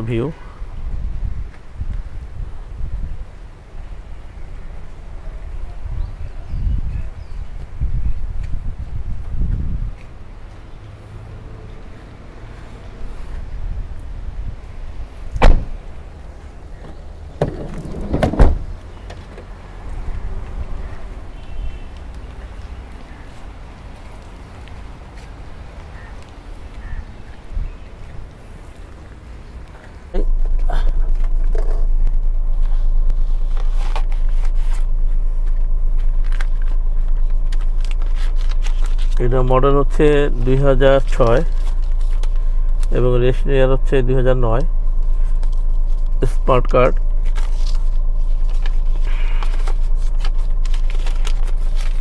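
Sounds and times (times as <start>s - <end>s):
car engine idling: 15.0s - 52.0s
car door thud: 15.4s - 15.8s, 16.8s - 18.8s
sliding door rolling and rattling: 17.4s - 18.7s.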